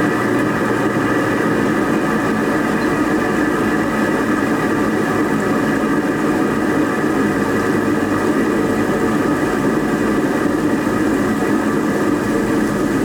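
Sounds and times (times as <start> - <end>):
water turbine humming: 0.0 - 13.0.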